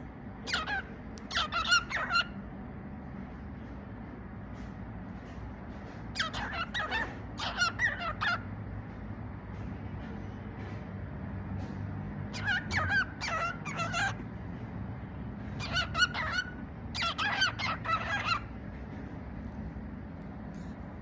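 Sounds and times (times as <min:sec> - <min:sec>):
cockatiel chattering: 0:00.4 - 0:02.4, 0:06.0 - 0:08.5, 0:12.3 - 0:14.3, 0:15.4 - 0:18.6.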